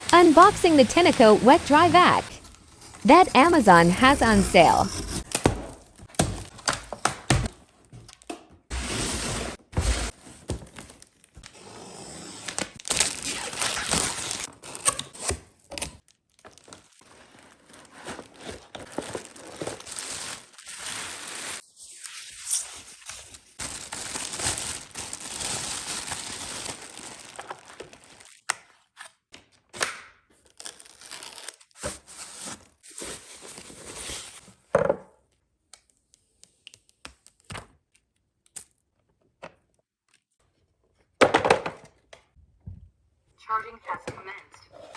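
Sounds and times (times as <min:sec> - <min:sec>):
packaging crinkling and tearing: 0:12.5 - 0:21.6, 0:23.0 - 0:29.2, 0:30.4 - 0:34.5.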